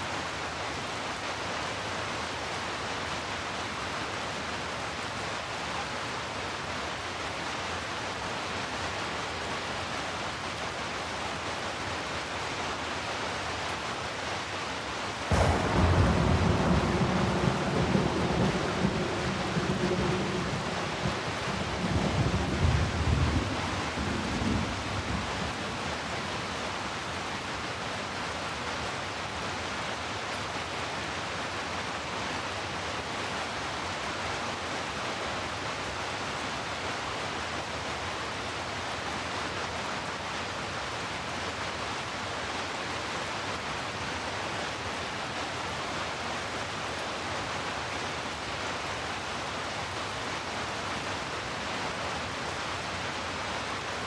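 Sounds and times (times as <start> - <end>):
heavy rain falling: 0.0 - 54.0
low thunder rumble: 15.3 - 25.6.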